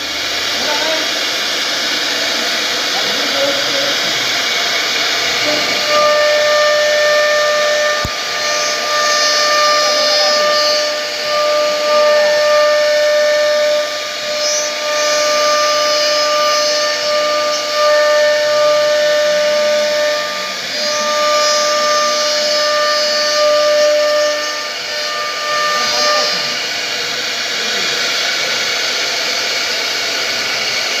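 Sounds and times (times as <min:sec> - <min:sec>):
power tool hiss and whine: 0:00.0 - 0:31.0.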